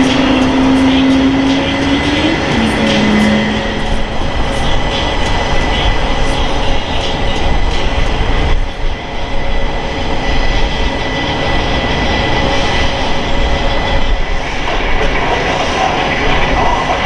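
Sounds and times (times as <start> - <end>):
high thin jet whine: 0.0 - 17.0
jet engines roaring: 0.0 - 17.0.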